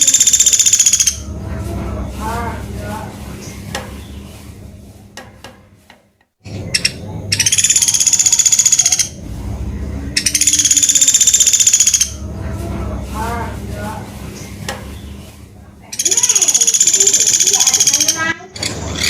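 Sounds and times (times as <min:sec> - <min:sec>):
woodpecker rattling trill: 0:00.0 - 0:02.7, 0:06.5 - 0:09.2, 0:10.0 - 0:12.4, 0:15.9 - 0:19.0.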